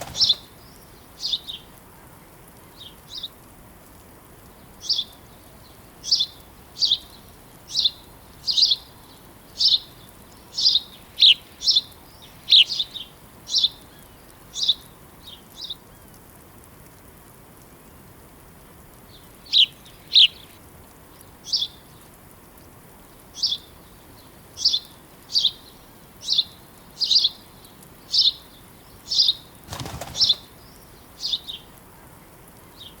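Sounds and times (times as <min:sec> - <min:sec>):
small bird chirping: 0:00.0 - 0:01.7, 0:28.0 - 0:31.7
soft steady hiss: 0:00.0 - 0:33.0.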